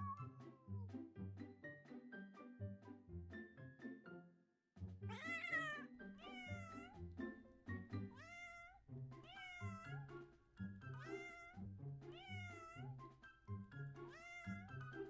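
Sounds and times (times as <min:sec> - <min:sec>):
background music: 0:00.0 - 0:15.0
cat meowing: 0:05.1 - 0:07.0, 0:08.1 - 0:10.1, 0:10.9 - 0:12.9, 0:14.0 - 0:14.8.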